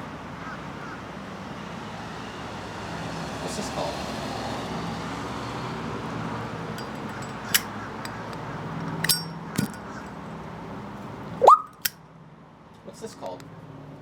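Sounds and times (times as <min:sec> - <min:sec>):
distant road traffic hum: 0:00.0 - 0:14.0
sharp clinks: 0:06.8 - 0:10.0.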